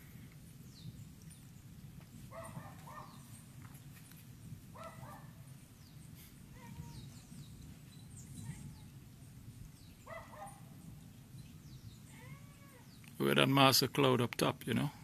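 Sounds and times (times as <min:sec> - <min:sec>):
birds chirping: 0:00.0 - 0:15.0
dog barking: 0:02.3 - 0:03.2, 0:04.8 - 0:05.4, 0:10.0 - 0:10.7.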